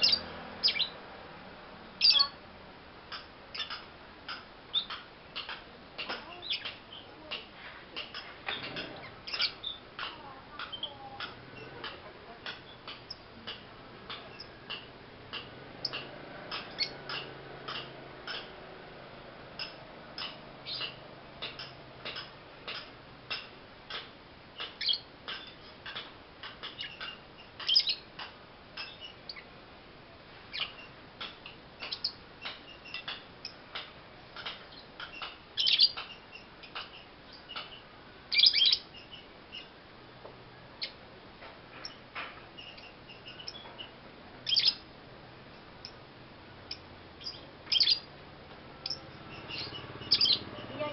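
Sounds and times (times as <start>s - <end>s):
lovebird chirping: 0.0s - 1.0s, 2.0s - 2.4s, 3.5s - 3.9s, 4.7s - 7.3s, 8.0s - 13.3s, 14.1s - 14.7s, 15.8s - 17.8s, 24.6s - 25.7s, 26.6s - 28.1s, 28.8s - 29.5s, 30.5s - 31.0s, 31.8s - 33.6s, 34.4s - 39.8s, 41.8s - 44.9s, 46.7s - 48.1s, 48.8s - 50.9s.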